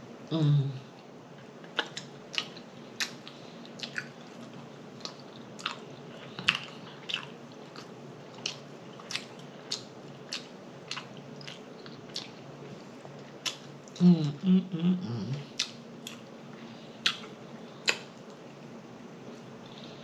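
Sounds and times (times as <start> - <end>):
person chewing food: 1.6 - 14.0, 15.4 - 18.6
wet mouth smacks and clicks: 17.9 - 18.1.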